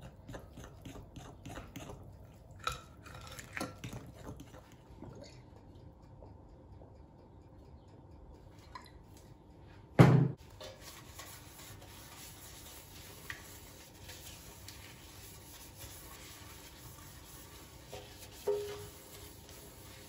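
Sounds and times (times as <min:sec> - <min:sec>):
paper towel rubbing in pan: 0:10.5 - 0:20.0.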